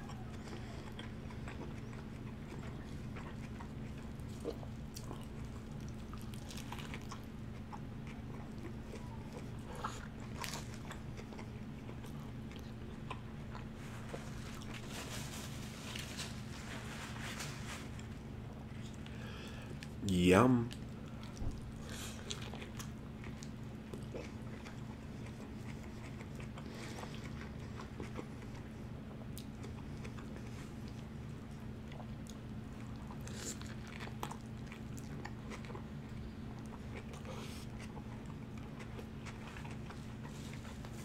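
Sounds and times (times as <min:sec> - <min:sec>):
biting and chewing burger: 0:00.0 - 0:20.0, 0:20.7 - 0:41.0
steady low hum: 0:00.0 - 0:41.0
crisp lettuce crunches: 0:05.3 - 0:07.3, 0:13.8 - 0:18.2.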